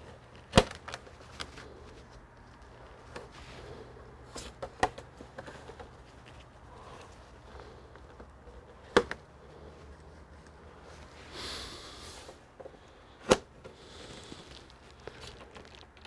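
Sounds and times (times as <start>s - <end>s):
scraping and rustling of parts: 0.0s - 11.3s.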